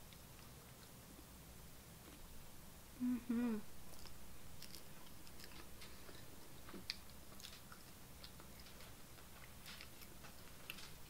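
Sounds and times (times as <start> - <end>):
person humming mmm: 3.0 - 3.7
chewing crunchy chip: 3.9 - 11.0.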